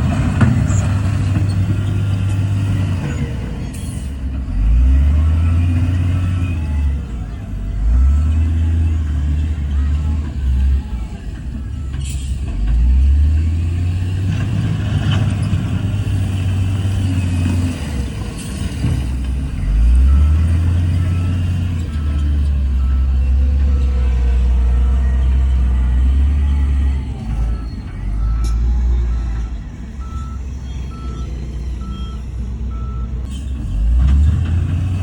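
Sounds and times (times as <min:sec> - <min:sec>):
heavy diesel engine under load: 0:00.0 - 0:35.0
faint reversing beeper: 0:16.3 - 0:33.7.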